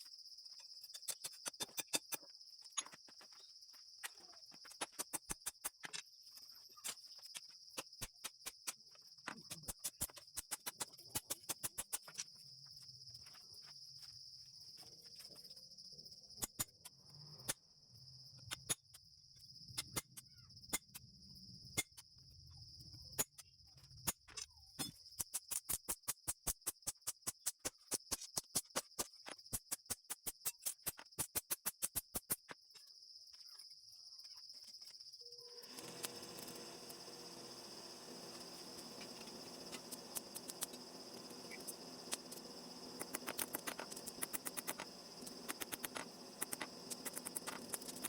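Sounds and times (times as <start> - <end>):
high-pitched insect chirring: 34.2 - 48.0.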